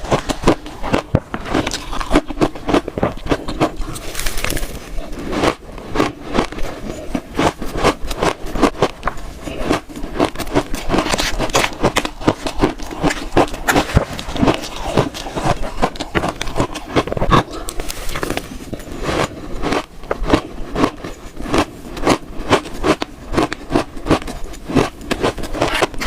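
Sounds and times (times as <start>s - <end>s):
chewing crunchy ice: 0.0s - 26.0s.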